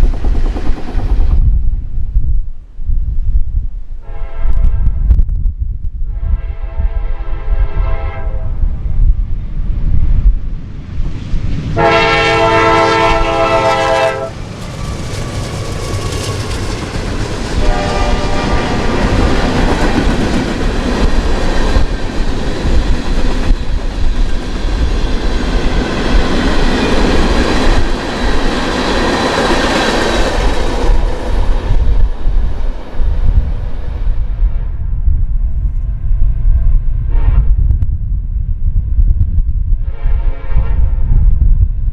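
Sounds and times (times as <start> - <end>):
train wheels on rails: 0.0 - 1.6, 10.0 - 34.3
train air horn blasts: 4.0 - 5.1, 6.1 - 8.6, 11.8 - 14.4, 17.6 - 19.0, 39.8 - 41.0.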